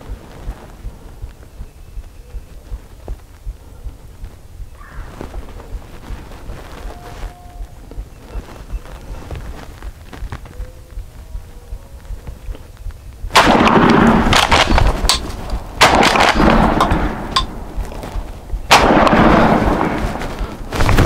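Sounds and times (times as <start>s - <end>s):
shotgun shots: 13.3s - 17.8s, 18.6s - 21.0s.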